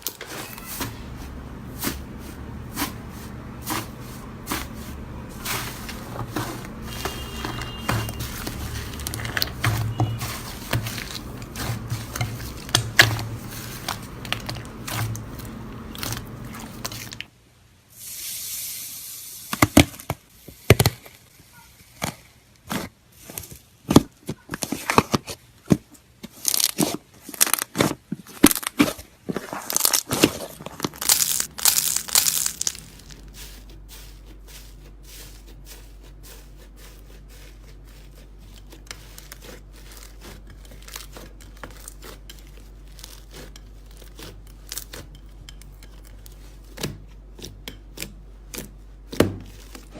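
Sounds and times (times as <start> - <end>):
slime crackling and popping: 29.6 - 33.3.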